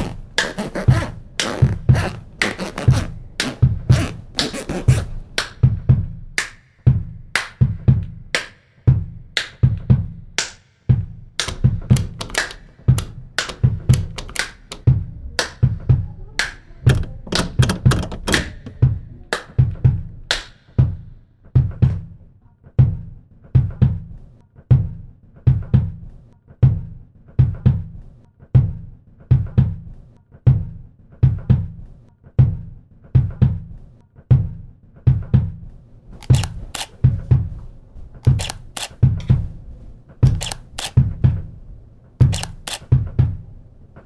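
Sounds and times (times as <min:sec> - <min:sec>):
rhythmic percussive beat: 0:00.0 - 0:21.0
sharp high clicks: 0:11.4 - 0:15.6, 0:16.4 - 0:18.9, 0:36.2 - 0:37.0, 0:38.2 - 0:39.4, 0:40.2 - 0:41.0, 0:42.3 - 0:42.9.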